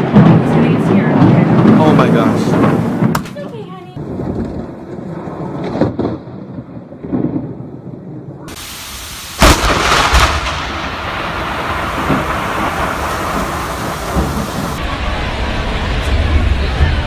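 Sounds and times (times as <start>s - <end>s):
thunder rumbling and cracking: 0.0s - 17.0s
rain hissing: 1.4s - 3.5s, 8.5s - 17.0s.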